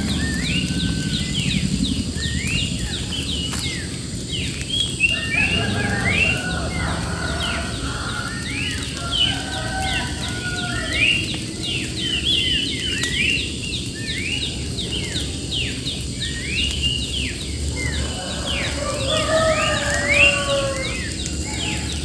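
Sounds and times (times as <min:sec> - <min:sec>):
steady low noise: 0:00.0 - 0:09.0
many birds chirping: 0:00.0 - 0:22.0.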